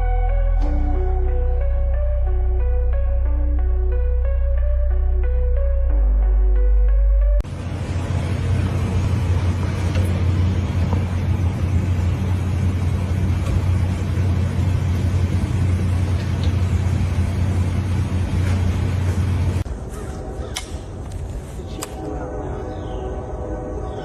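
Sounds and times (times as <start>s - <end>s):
motor vehicle rumble: 7.4s - 22.1s.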